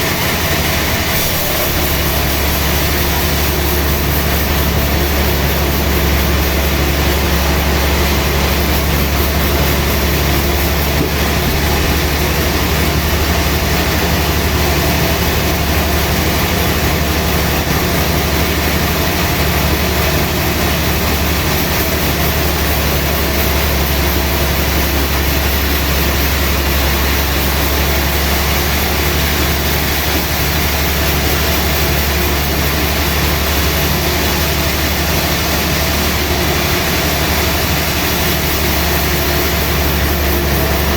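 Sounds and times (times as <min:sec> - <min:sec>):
sawmill machinery drone: 0:00.0 - 0:40.9.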